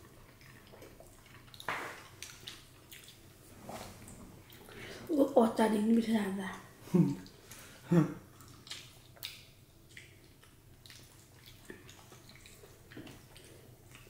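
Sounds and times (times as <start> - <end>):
wet chewing and mouth smacks: 0.0 - 3.4, 8.3 - 14.0.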